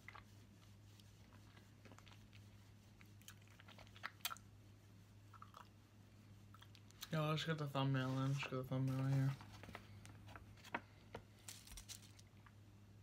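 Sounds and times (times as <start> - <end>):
steady low hum: 0.0 - 13.0
person chewing: 1.3 - 4.6, 5.3 - 5.8.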